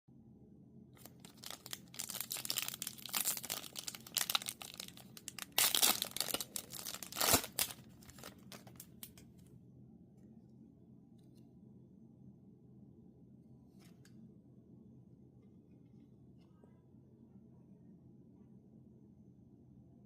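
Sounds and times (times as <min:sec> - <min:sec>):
foil wrapper tearing and crinkling: 0:01.0 - 0:09.2.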